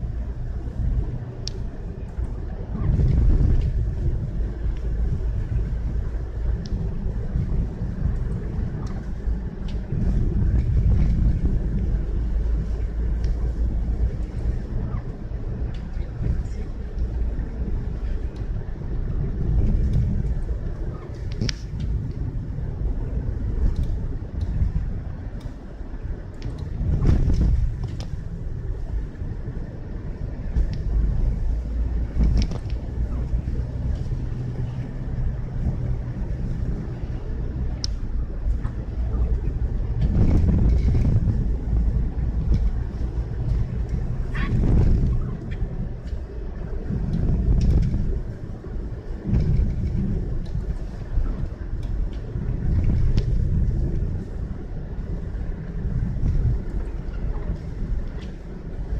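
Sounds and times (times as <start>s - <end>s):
road and wind rumble: 0.0s - 58.9s
faint ticks: 37.8s - 38.0s.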